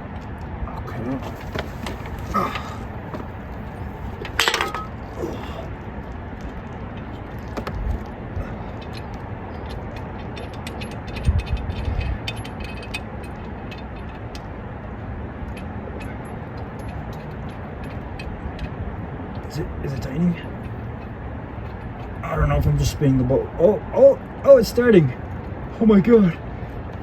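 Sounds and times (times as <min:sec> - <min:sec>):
metallic clinking of tools: 0:01.2 - 0:05.6.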